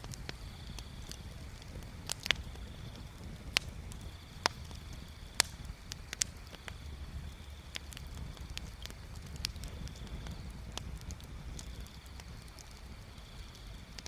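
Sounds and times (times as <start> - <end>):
bonfire crackling and popping: 0.0 - 14.0
low steady rumble: 0.0 - 14.0.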